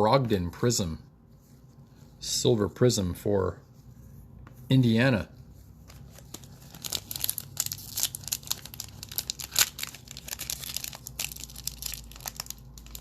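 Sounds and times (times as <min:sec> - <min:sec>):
plastic wrapper crinkling and tearing: 0:05.8 - 0:13.0.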